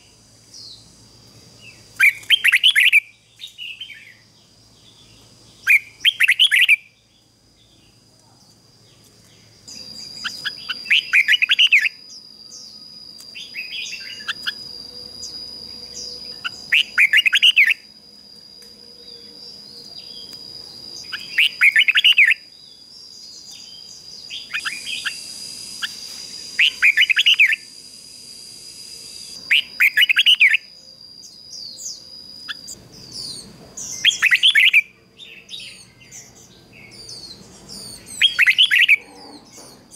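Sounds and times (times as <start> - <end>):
bird singing warbled phrases: 0.0 - 18.0, 19.0 - 27.7, 29.1 - 39.9
high-pitched whine: 9.4 - 39.9.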